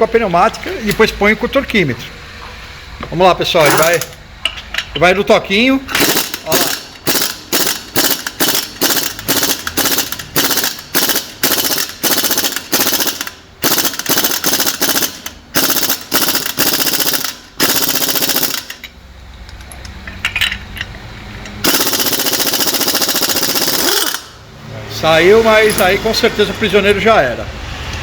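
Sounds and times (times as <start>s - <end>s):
pneumatic impact wrench hammering: 3.7s - 4.9s, 5.9s - 19.0s, 20.3s - 24.4s.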